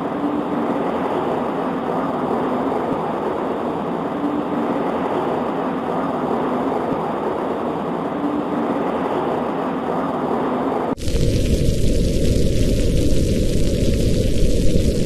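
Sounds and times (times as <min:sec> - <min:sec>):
rain on a window: 0:10.9 - 0:15.0.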